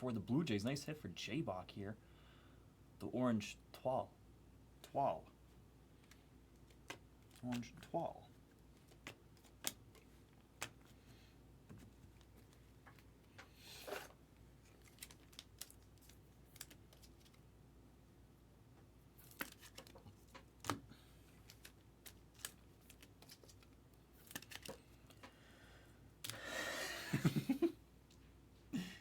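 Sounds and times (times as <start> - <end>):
pack wrappers rustling: 13.7 - 17.4, 21.3 - 25.2
trading cards clicking: 19.2 - 25.3.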